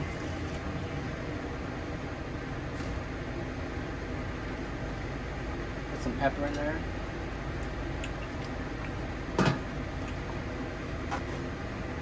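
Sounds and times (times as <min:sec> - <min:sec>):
steady background hum: 0:00.0 - 0:12.0
loud kitchen clunk: 0:09.4 - 0:09.7.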